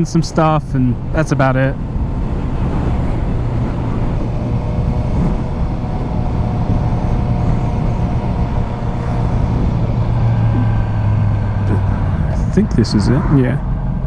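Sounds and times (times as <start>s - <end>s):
wind and road rush: 0.0s - 14.0s
motorcycle engine running: 1.8s - 14.0s.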